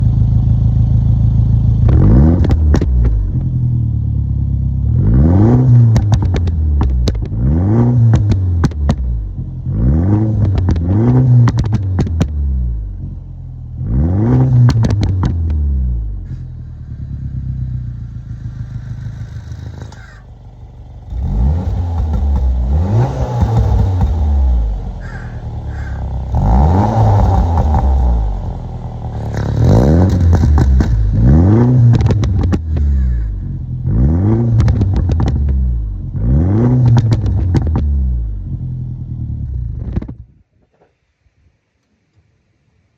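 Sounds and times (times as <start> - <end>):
car engine revving: 0.0 - 40.1
exhaust pops: 1.8 - 3.6, 5.6 - 9.4, 10.3 - 12.5, 14.5 - 20.4, 21.0 - 38.6, 39.5 - 40.4.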